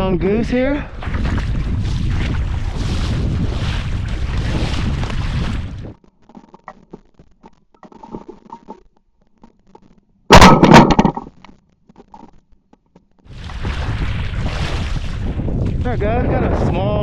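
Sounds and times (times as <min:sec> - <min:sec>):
wind noise: 0:00.8 - 0:06.0, 0:13.3 - 0:17.0
microphone handling clicks and rustles: 0:04.0 - 0:15.9
rustling and knocking burst: 0:10.3 - 0:11.4.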